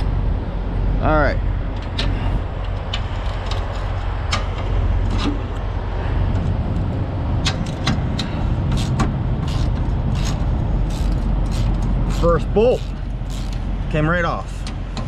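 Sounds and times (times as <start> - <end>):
wrench clicking: 7.4 - 13.6.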